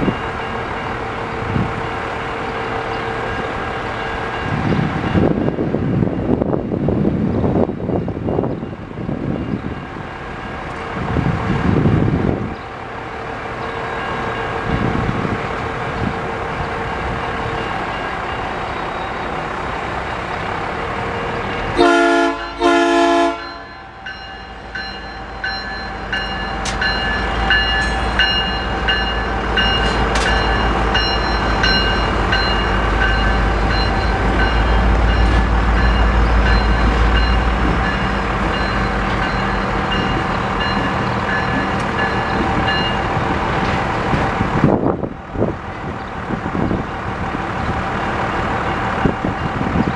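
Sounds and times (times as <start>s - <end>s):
train wheels rumbling on rails: 0.0s - 49.9s
locomotive horn blasts: 21.7s - 24.0s
sharp rail clicks: 26.0s - 37.1s, 37.7s - 44.4s.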